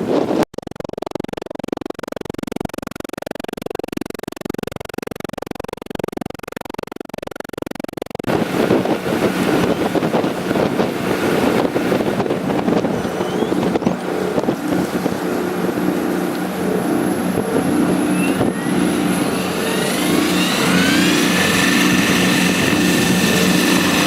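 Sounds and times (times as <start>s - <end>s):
boat engine running: 0.0s - 24.0s
hum with high whine: 0.0s - 24.0s
wind buffeting microphone: 8.3s - 24.0s.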